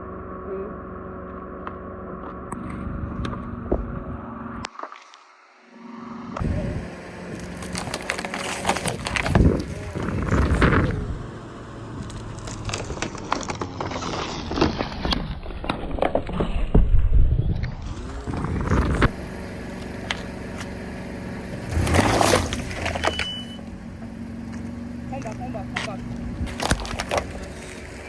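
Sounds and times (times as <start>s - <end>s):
low rumble: 0.0s - 4.7s, 6.4s - 14.0s
car engine running: 0.0s - 4.8s, 5.6s - 28.0s
tyre crushing cans: 7.3s - 10.6s.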